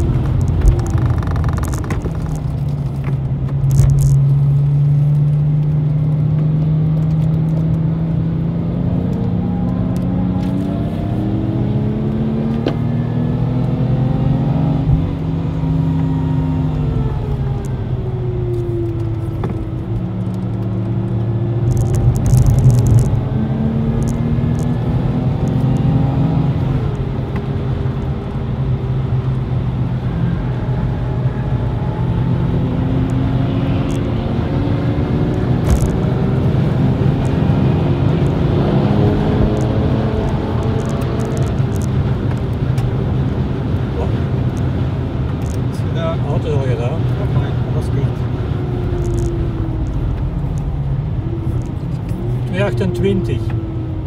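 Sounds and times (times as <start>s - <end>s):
car engine accelerating: 0.0s - 54.0s
tyre and road noise: 0.0s - 54.0s.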